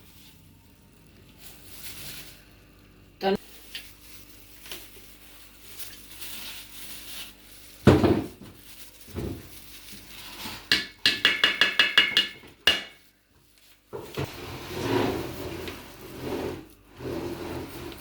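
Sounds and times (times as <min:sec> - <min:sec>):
ringing metallic taps on a pot: 0:10.7 - 0:12.9
kitchen utensils knocking: 0:10.7 - 0:13.0.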